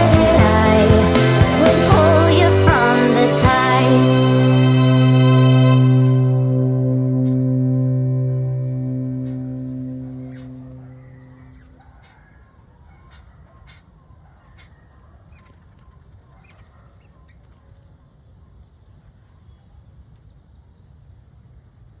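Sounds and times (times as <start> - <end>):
low steady rumble: 4.1 - 11.6
bird chirps: 5.7 - 17.8.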